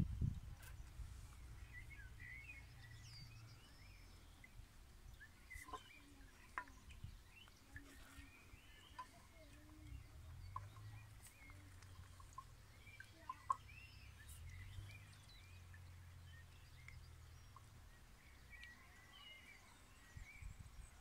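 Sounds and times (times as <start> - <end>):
faint birds chirping: 0.0 - 21.0.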